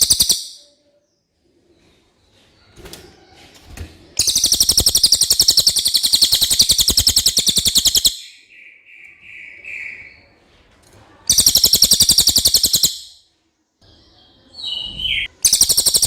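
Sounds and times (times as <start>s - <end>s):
bird singing rapid trill: 0.0s - 0.8s, 4.2s - 10.2s, 11.3s - 13.2s, 13.8s - 16.0s.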